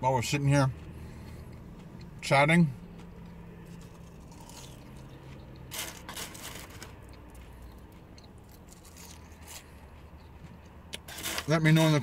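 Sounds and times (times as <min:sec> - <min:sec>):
person chewing food: 0:02.9 - 0:11.1.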